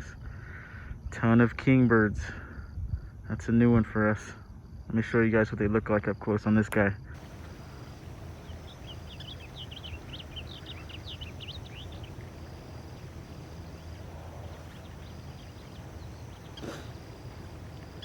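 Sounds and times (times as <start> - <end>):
bird twittering: 7.2 - 18.0
low background rumble: 7.2 - 18.0.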